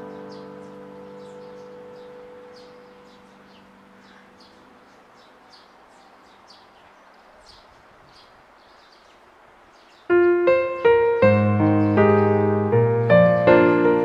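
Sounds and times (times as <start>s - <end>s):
piano music: 0.0s - 5.1s, 10.1s - 14.0s
bird chirping faintly: 0.0s - 14.0s
outdoor background noise: 0.0s - 14.0s.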